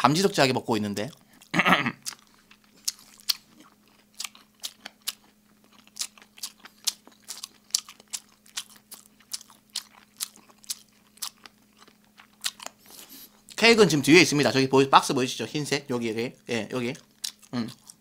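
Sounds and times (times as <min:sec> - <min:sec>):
wet open-mouth chewing: 0:01.0 - 0:13.6, 0:16.9 - 0:18.0.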